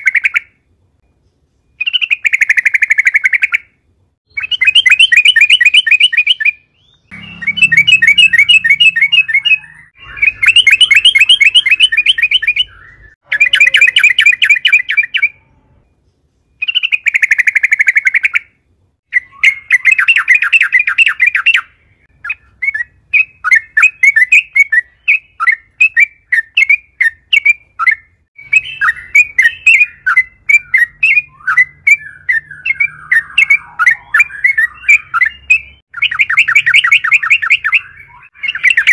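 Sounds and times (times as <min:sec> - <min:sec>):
bird singing rapid chattering notes: 0:01.2 - 0:38.9.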